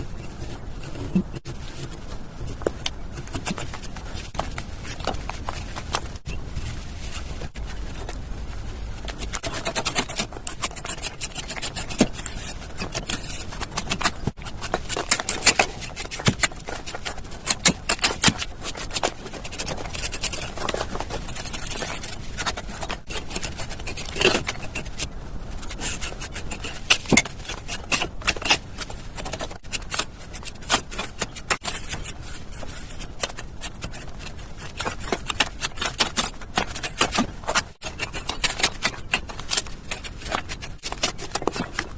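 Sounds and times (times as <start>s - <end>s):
hand tools scraping cement: 9.2s - 25.1s, 25.7s - 41.9s.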